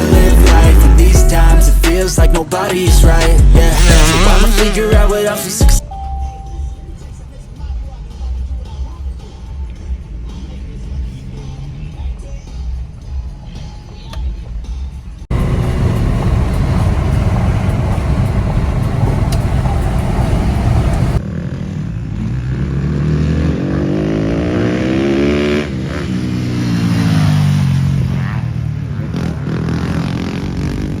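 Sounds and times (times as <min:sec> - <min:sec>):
loud rushing noise: 0:00.0 - 0:05.8, 0:15.3 - 0:21.2
dirt bike engine revving: 0:02.9 - 0:05.8, 0:20.7 - 0:31.0.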